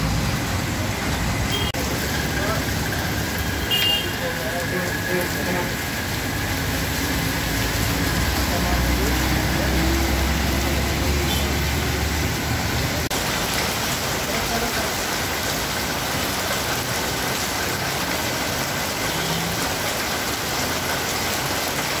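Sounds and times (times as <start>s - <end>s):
bus engine rumbling: 0.0s - 13.2s
heavy rain on a wet street: 0.0s - 22.0s.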